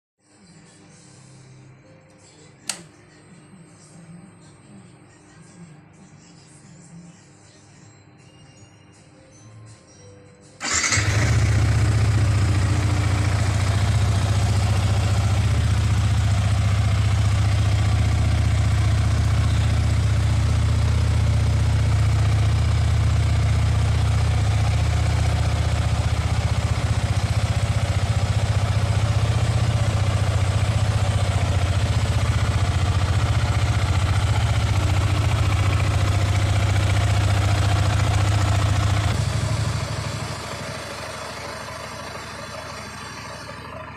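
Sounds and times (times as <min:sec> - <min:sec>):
motorcycle engine idling: 0:10.6 - 0:43.9
motorcycle engine starting: 0:10.6 - 0:43.9.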